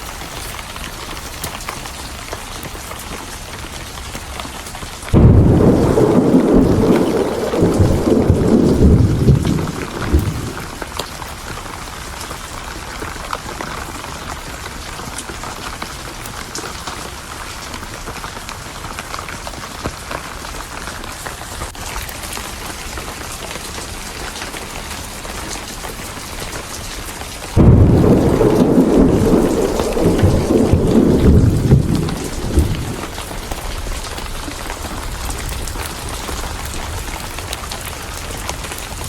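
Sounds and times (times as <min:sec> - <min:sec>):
steady rain: 0:00.0 - 0:39.0
fire crackling: 0:02.4 - 0:11.9, 0:25.5 - 0:39.0
thunder rumbling: 0:05.1 - 0:11.3, 0:27.4 - 0:37.9.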